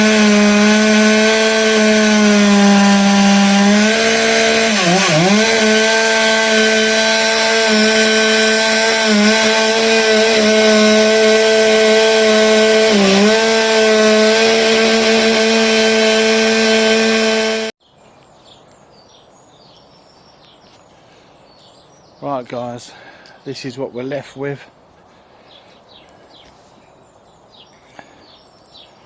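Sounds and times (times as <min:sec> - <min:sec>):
chainsaw cutting wood: 0:00.0 - 0:17.8.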